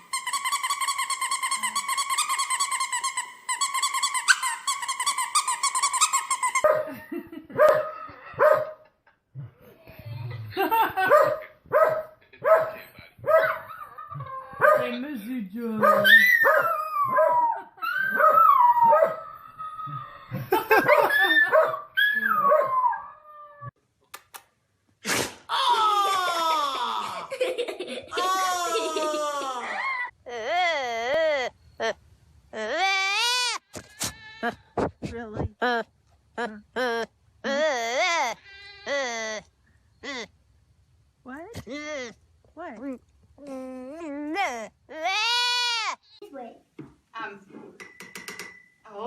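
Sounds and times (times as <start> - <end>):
dog yipping: 0.2 - 7.0, 11.1 - 14.9, 15.8 - 23.7
lower dog barks: 6.6 - 8.9, 11.0 - 13.7, 14.6 - 14.9
animal wailing cry: 17.9 - 20.4, 43.4 - 46.0.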